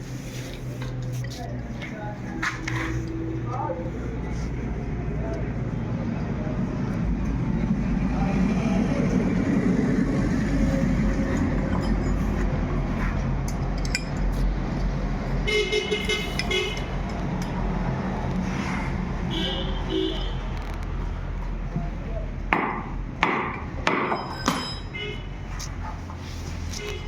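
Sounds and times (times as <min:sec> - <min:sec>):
street traffic: 0:00.0 - 0:27.0
horn toots: 0:15.5 - 0:16.9
sharp knocks: 0:22.5 - 0:24.8.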